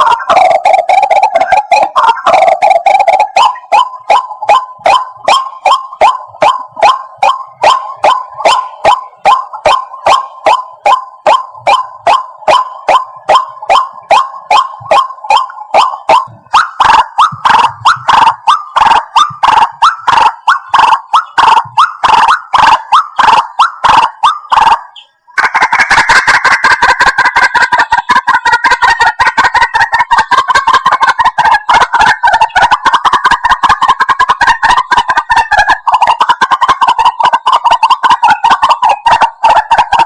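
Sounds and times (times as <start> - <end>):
bird croaking calls: 0.0 - 40.0.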